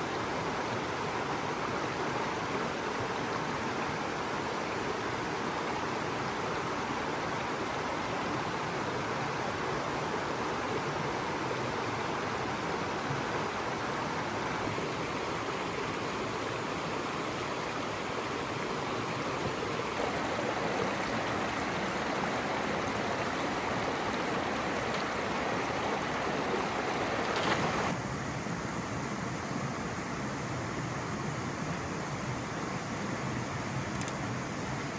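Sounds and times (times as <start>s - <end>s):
rushing water: 0.0s - 28.0s.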